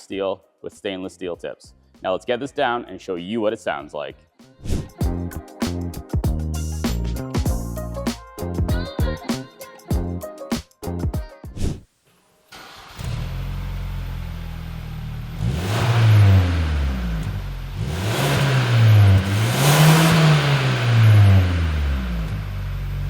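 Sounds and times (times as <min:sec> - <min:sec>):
car engine idling and revving: 0:12.6 - 0:23.0.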